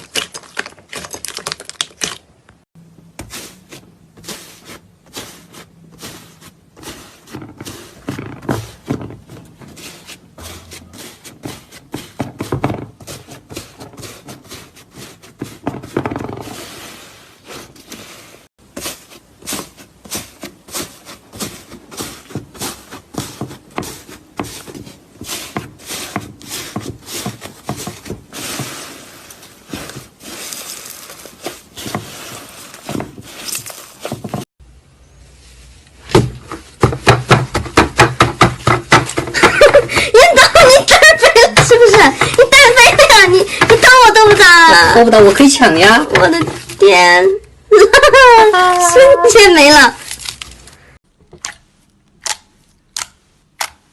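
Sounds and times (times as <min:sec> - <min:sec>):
slime crackling and popping: 0:00.0 - 0:02.6.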